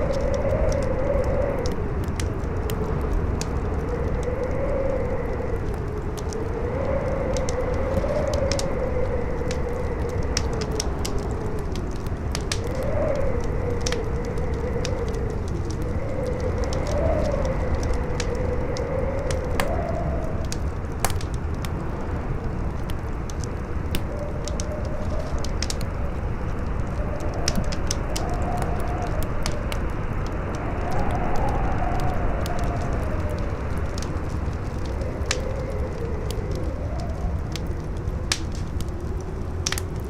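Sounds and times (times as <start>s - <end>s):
campfire crackling and popping: 0.0s - 40.0s
strong wind howling: 0.0s - 40.0s.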